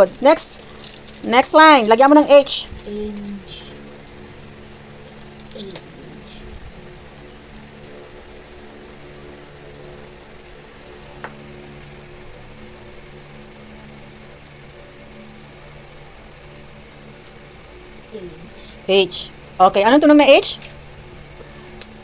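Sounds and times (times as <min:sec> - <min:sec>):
small motor humming: 0:00.0 - 0:22.0.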